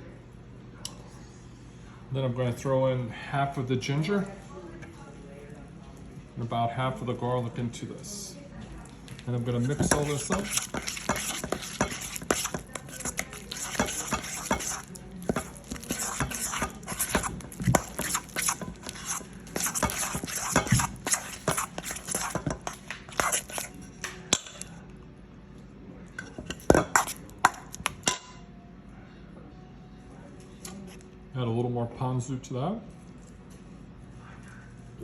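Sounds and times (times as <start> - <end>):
utensil stirring sauce in bowl: 9.1 - 24.7, 26.2 - 28.0
utensil knocking on bowl: 9.7 - 23.7.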